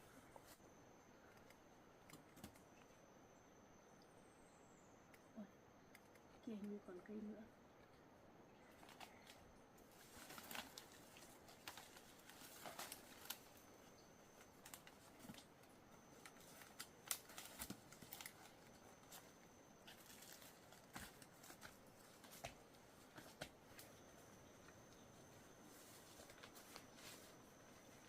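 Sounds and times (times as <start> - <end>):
faint high whine: 0.0 - 28.0
leaves and soil rustling: 8.7 - 28.0.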